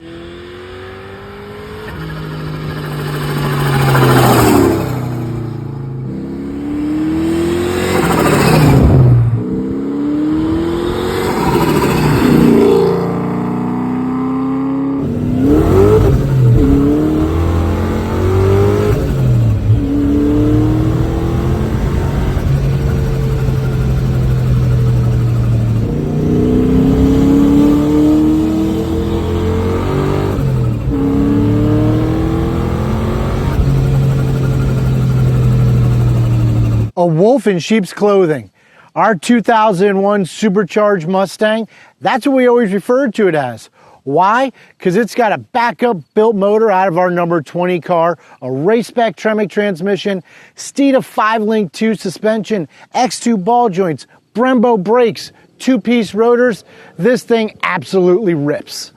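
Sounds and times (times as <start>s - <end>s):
car engine accelerating hard: 0.0s - 37.0s.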